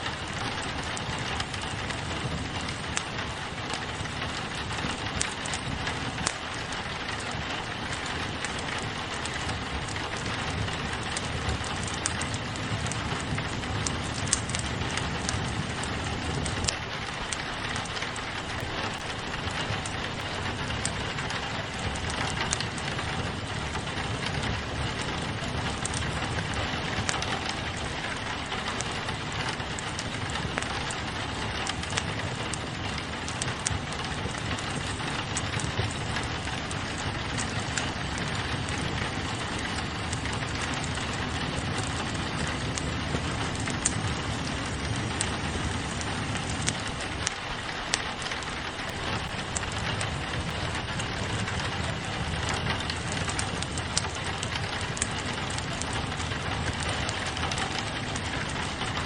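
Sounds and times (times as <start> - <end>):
rain pattering on a window: 0.0 - 59.0
wood fire crackling: 0.0 - 59.0.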